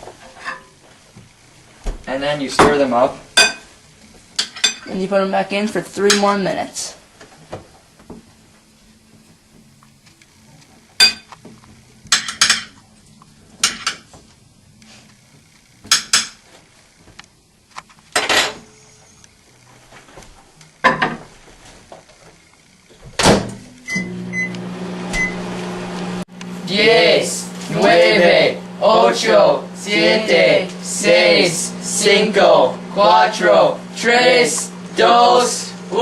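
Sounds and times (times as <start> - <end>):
microwave oven humming: 0.0 - 36.0
microwave keypad beep: 23.8 - 25.4.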